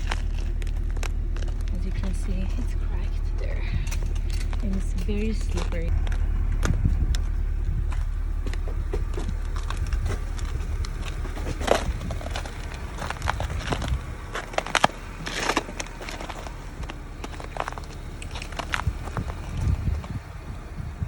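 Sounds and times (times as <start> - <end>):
footsteps crunching on icy snow: 0.0 - 20.2
low rumble: 0.0 - 21.0.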